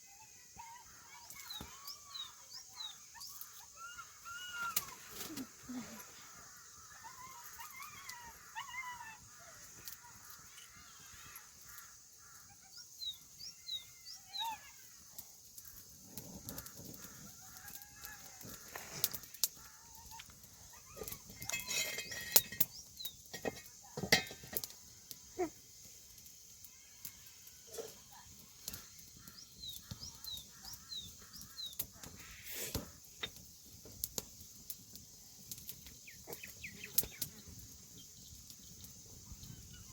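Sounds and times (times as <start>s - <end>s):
birds chirping: 0.6s - 23.3s, 28.2s - 39.9s.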